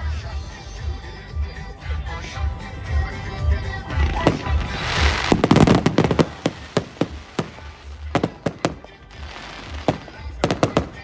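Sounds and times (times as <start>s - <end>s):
fireworks bangs and cracks: 3.9s - 11.0s
fireworks crackling: 3.9s - 11.0s.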